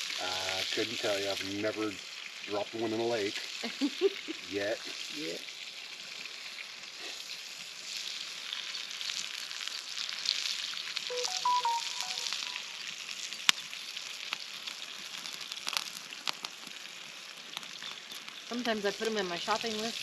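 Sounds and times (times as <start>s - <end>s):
sausages sizzling in a frying pan: 0.0s - 20.0s
short electronic chime: 11.1s - 12.8s.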